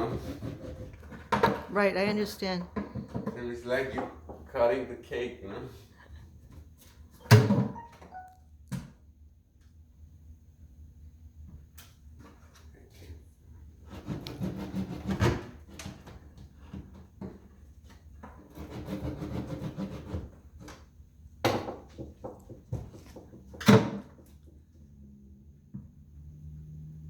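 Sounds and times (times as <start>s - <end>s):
hand tool rasping wood: 0.0s - 1.3s, 13.9s - 15.4s, 18.4s - 20.3s.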